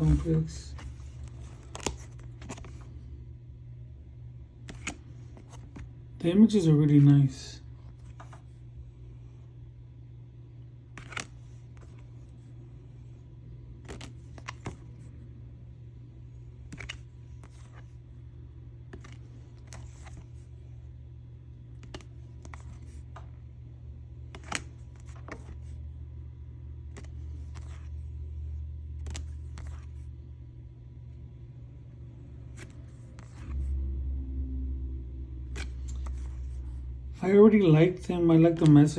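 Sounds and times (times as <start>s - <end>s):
steady low hum: 0.0s - 38.9s
cards tapping and snapping: 1.2s - 2.8s, 13.8s - 14.9s, 24.3s - 25.6s.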